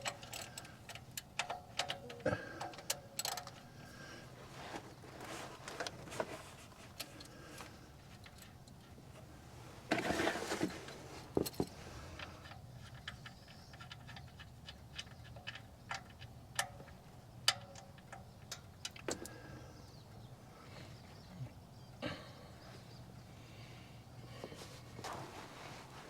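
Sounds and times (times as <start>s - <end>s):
scraping rustle: 4.4s - 7.1s, 9.1s - 12.2s, 24.5s - 26.0s.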